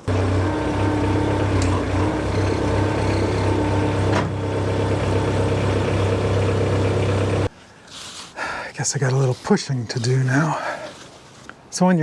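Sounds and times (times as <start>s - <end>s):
sawmill engine humming: 0.0s - 7.5s.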